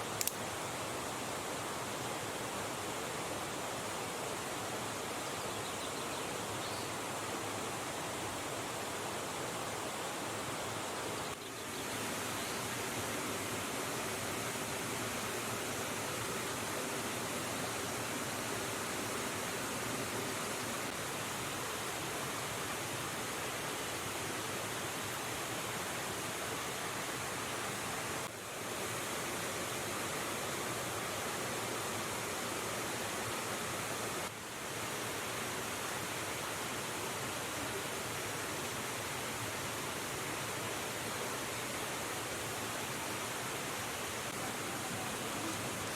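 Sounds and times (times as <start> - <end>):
river water rushing: 0.0 - 45.9.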